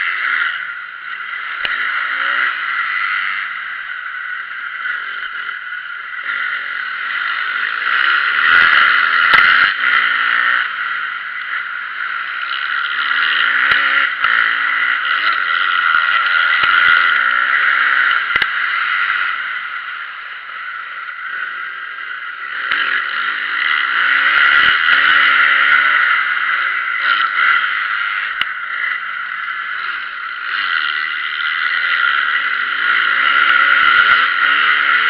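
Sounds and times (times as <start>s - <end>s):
dirt bike engines revving: 0.0s - 35.0s
sharp clicks and knocks: 18.3s - 18.6s.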